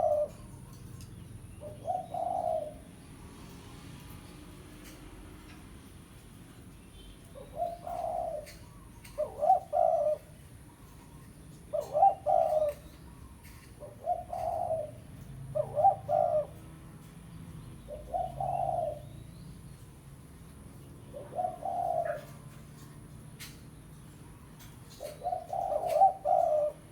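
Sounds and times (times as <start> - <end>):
dove cooing: 0.0 - 1.0, 1.6 - 3.1, 7.4 - 19.2, 20.7 - 23.6, 24.6 - 26.9.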